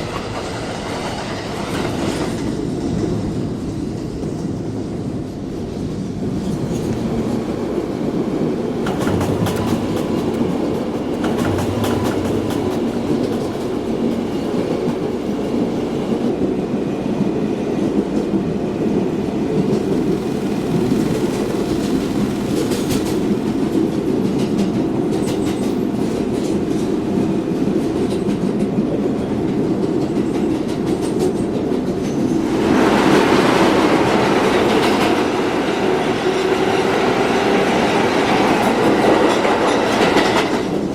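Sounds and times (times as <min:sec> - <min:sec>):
subway train wheels rumbling: 0:00.0 - 0:40.9.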